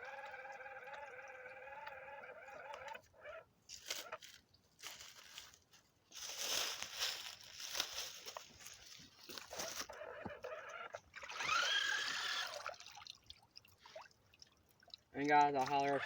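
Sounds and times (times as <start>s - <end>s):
toy car motor whining: 0.0s - 4.3s, 9.4s - 12.8s, 15.7s - 16.0s
water and mud splashing: 10.7s - 16.0s.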